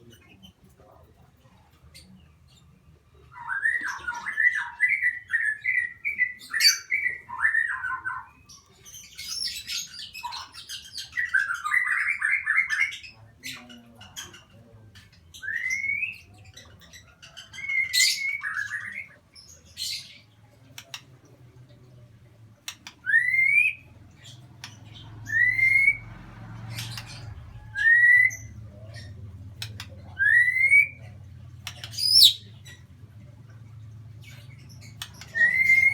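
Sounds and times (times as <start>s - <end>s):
lovebird chattering and trilling: 3.4s - 21.1s, 22.6s - 33.0s, 34.1s - 35.9s.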